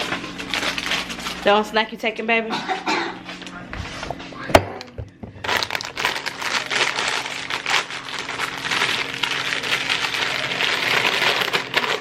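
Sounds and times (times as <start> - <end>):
snack packaging crinkling: 0.0 - 1.5, 5.4 - 12.0.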